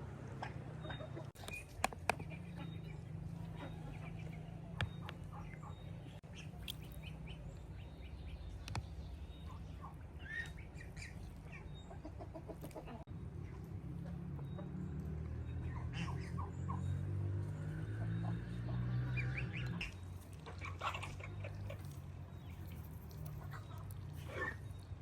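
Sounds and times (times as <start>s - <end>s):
chickens clucking: 0.2s - 25.0s
small birds chirping: 0.3s - 25.0s.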